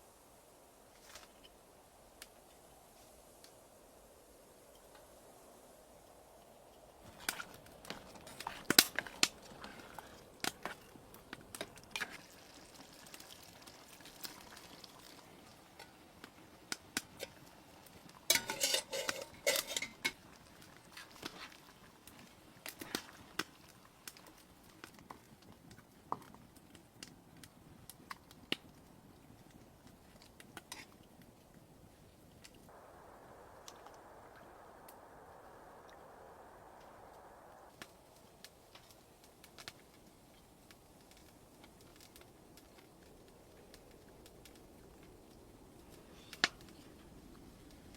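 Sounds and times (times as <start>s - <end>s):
clinks and knocks of handling: 18.3s - 20.1s.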